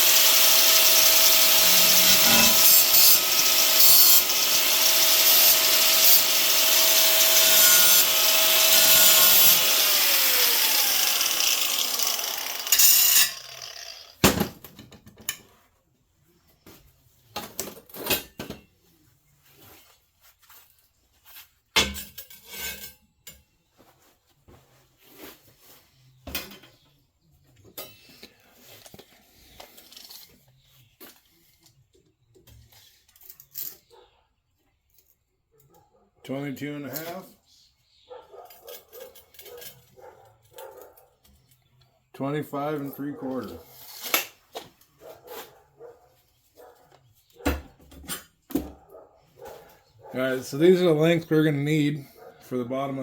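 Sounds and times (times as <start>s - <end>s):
power tool grinding steel: 0.0s - 14.2s
sharp metal clanks: 0.2s - 4.4s.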